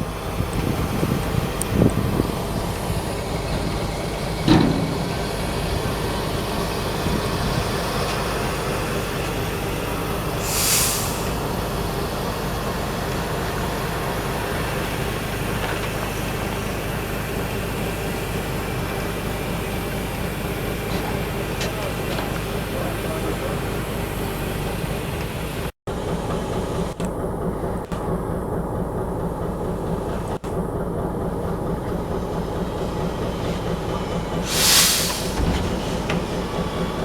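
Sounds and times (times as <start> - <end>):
crane engine running: 0.0 - 37.0
hiss of air: 10.3 - 11.6, 34.4 - 36.0.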